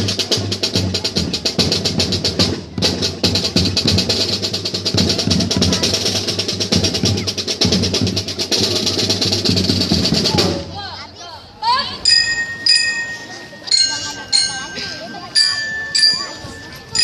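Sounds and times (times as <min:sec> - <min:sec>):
low bass drums: 0:00.0 - 0:10.7
marching snare drum strokes: 0:00.0 - 0:10.8.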